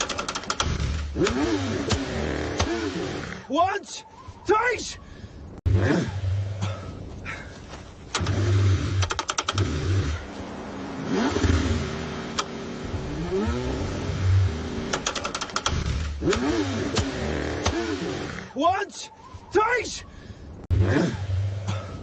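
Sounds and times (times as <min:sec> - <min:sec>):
rapid ticking: 0:00.0 - 0:02.0, 0:14.9 - 0:17.8
car engine cranking: 0:00.0 - 0:03.4, 0:08.0 - 0:18.5.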